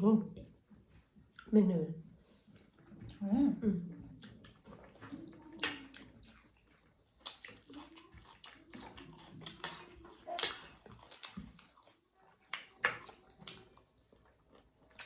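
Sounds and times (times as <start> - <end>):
wet chewing: 4.0 - 15.0.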